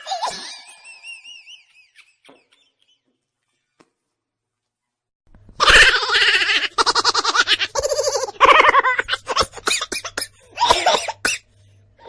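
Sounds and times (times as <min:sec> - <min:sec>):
baby laughing: 0:05.6 - 0:11.4.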